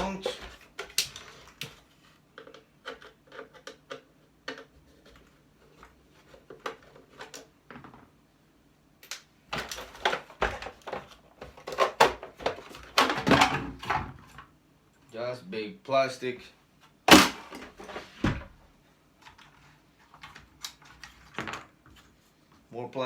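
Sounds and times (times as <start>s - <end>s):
plastic and metal parts clattering: 0.0s - 8.1s, 9.5s - 14.5s, 19.2s - 22.1s.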